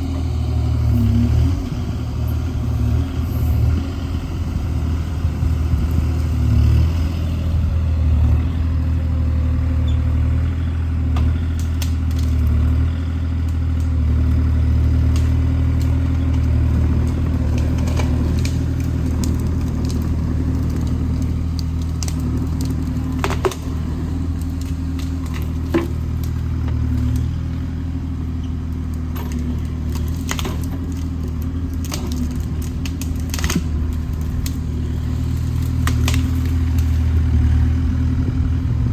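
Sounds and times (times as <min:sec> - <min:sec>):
mini excavator diesel engine running: 0:00.0 - 0:38.9
sharp cracks and clicks: 0:11.2 - 0:12.8, 0:14.9 - 0:27.3, 0:28.8 - 0:37.1.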